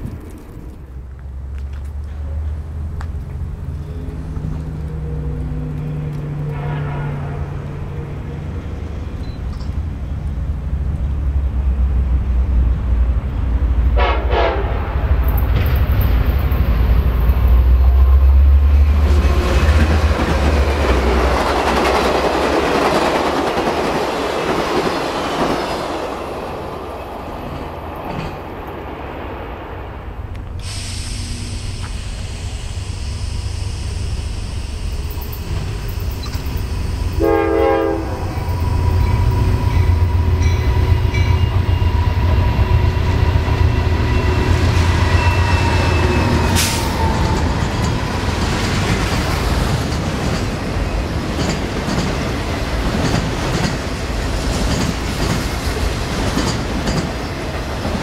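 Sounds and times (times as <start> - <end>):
diesel locomotive engine drone: 0.0 - 58.0
distant train rumbling: 0.0 - 58.0
rush of passing train cars: 0.0 - 58.0
train horn blast: 4.8 - 8.5, 13.9 - 15.1, 37.1 - 47.1.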